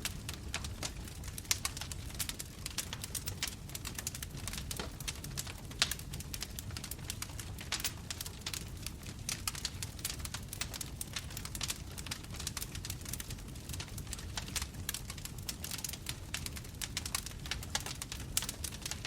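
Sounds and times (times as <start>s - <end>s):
bonfire flames rumbling: 0.0s - 19.0s
wood crackling and popping: 0.0s - 19.0s.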